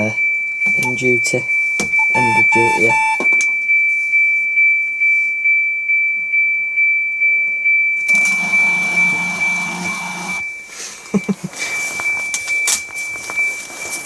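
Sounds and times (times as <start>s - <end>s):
print mechanism running: 8.1s - 10.4s
pulsing high-pitched whine: 8.1s - 10.4s.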